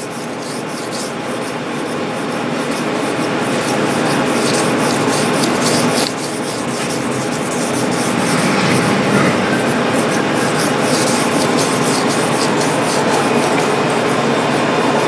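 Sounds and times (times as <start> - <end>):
knife rasping on wet whetstone: 0.0 - 8.1, 10.1 - 13.8.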